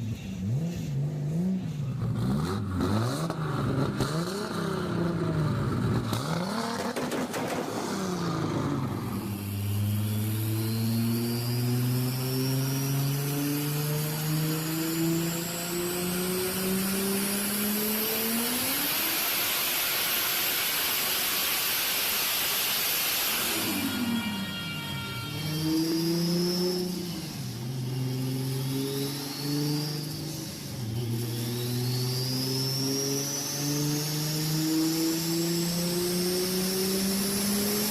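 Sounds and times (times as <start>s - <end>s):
car engine revving: 0.0s - 23.8s, 25.2s - 37.9s
thin high whistle: 19.9s - 32.6s.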